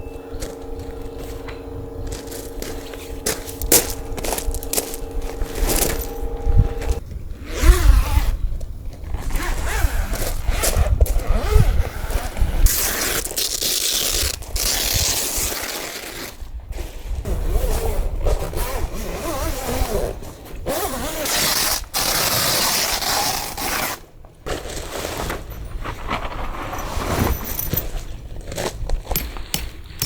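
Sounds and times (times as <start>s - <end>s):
low steady hum: 0.0s - 7.4s
scraping and rustling of objects: 8.2s - 30.0s.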